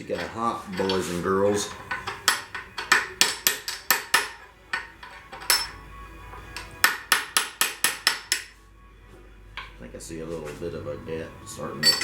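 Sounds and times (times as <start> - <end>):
hammer tapping steel: 0.0 - 8.6.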